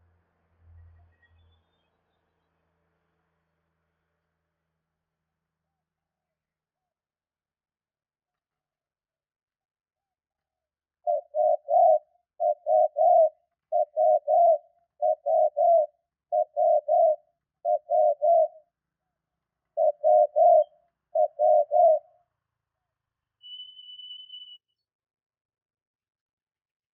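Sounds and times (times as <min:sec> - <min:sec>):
dove cooing: 0:11.0 - 0:18.6, 0:19.8 - 0:22.2.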